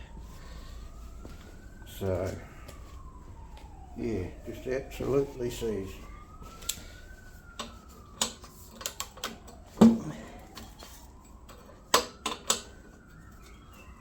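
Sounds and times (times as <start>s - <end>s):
faint siren wail: 0.0s - 14.0s
metal tools clicking and knocking: 11.5s - 12.7s.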